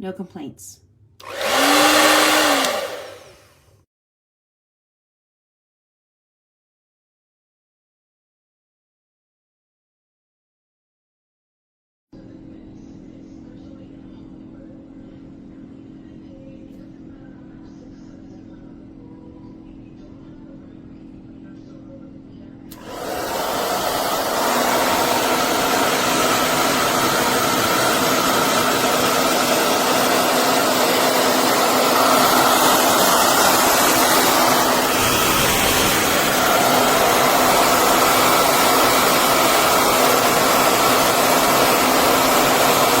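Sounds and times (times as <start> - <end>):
hair dryer blowing: 1.2 - 3.8, 22.7 - 43.0.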